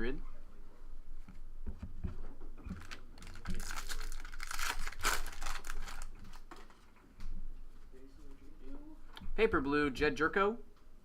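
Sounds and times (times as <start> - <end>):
wrapper tearing and crinkling: 2.8 - 6.6.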